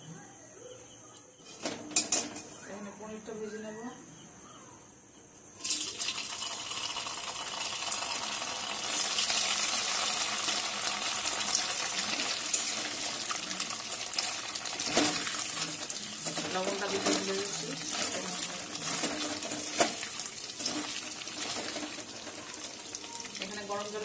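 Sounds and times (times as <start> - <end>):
food frying in hot oil: 5.6 - 24.0.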